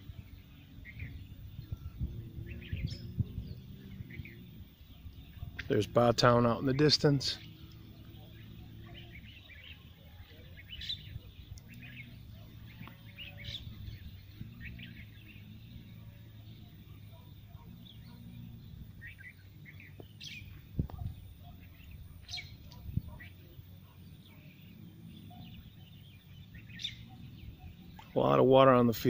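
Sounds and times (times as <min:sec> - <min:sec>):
low steady rumble: 0:00.0 - 0:22.0
birds chirping and calling: 0:00.0 - 0:29.0.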